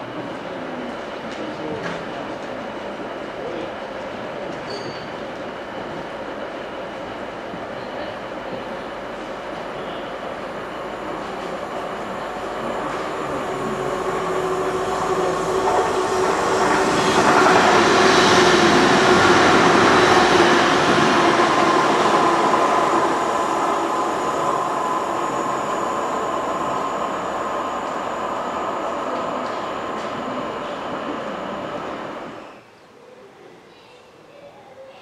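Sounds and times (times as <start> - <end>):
train wheels rumbling: 1.3 - 32.4
steady whine: 10.4 - 32.4.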